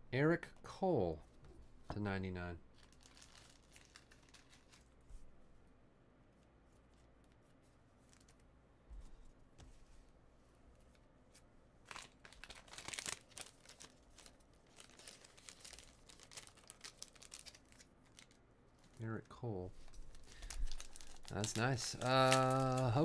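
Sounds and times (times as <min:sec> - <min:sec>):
wrapper crinkling and tearing: 0:02.7 - 0:05.0, 0:11.8 - 0:19.1, 0:19.8 - 0:23.0.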